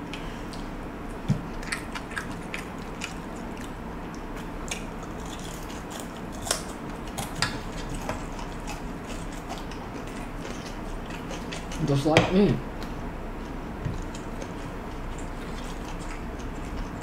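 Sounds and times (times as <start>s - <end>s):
chewing crispy fried fish: 1.5s - 12.1s, 12.7s - 17.0s.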